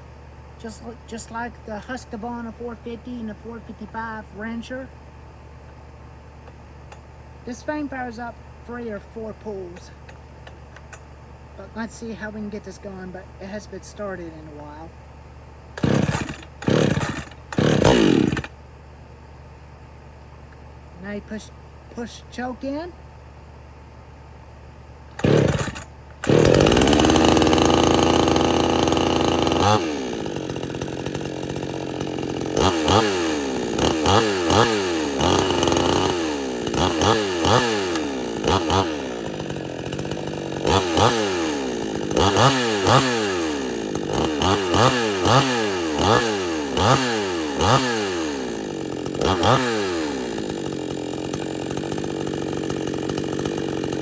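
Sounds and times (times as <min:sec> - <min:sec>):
chainsaw starting and revving: 0:15.7 - 0:18.6, 0:25.1 - 0:54.0.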